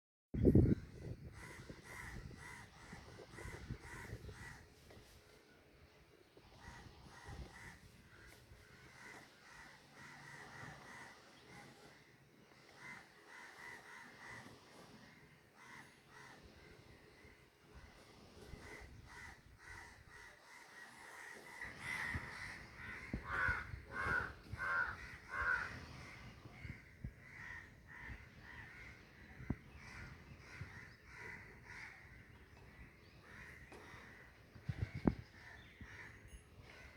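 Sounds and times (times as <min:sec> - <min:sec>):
crows cawing: 0:06.7 - 0:11.2, 0:12.8 - 0:14.5, 0:18.6 - 0:29.0, 0:29.8 - 0:32.2.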